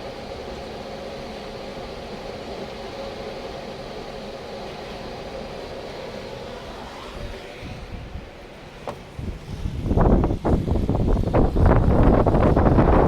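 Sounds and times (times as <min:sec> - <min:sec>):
wind turbine whine: 0:00.0 - 0:13.0
wind rushing: 0:06.5 - 0:13.0.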